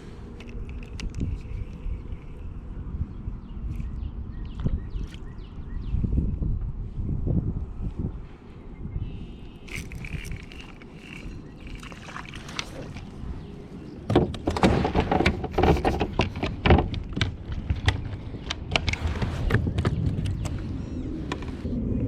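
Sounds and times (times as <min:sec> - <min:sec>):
knocks and splashes against kayak hull: 0:14.1 - 0:18.0.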